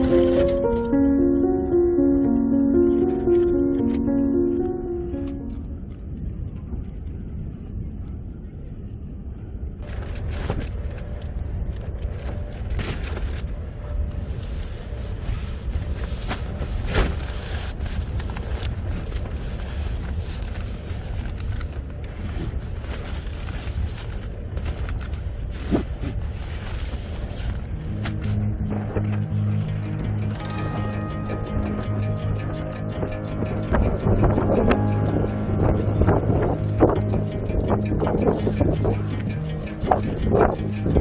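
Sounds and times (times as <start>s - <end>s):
strong wind buffeting microphone: 5.6s - 28.4s.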